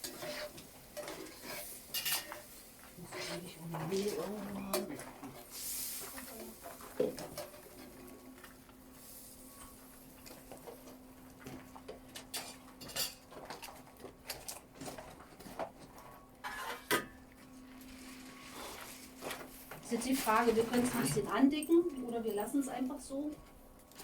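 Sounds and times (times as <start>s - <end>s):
utensils clinking against pot: 0.0s - 5.4s, 12.2s - 13.8s.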